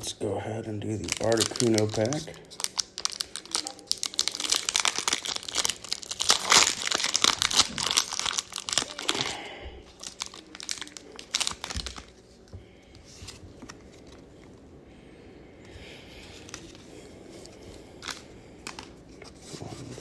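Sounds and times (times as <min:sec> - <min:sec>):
foil wrapper crinkling and tearing: 0:00.8 - 0:12.4, 0:16.3 - 0:20.0.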